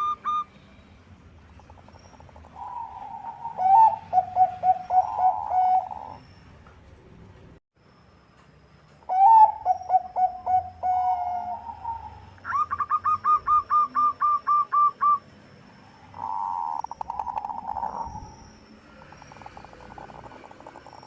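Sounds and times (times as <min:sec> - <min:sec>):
dove cooing: 0:02.2 - 0:06.2, 0:09.1 - 0:15.2.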